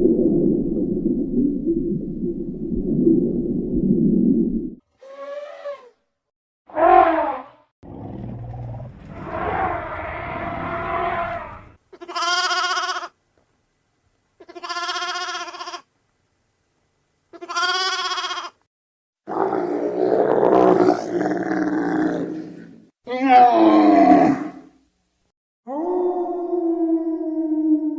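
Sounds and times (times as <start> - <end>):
animal calls: 9.0 - 13.1.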